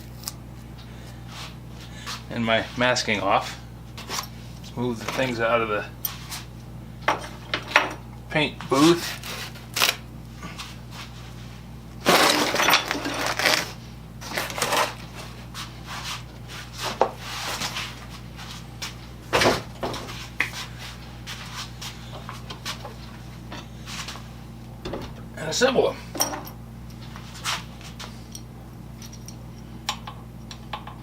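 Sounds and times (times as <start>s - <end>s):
steady low hum: 0.0s - 31.0s
metal parts knocking and clattering: 12.1s - 13.4s.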